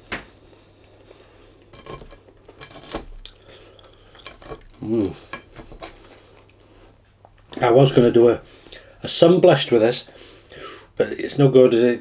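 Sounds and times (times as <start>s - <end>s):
fork scraping a dish: 1.7s - 6.2s.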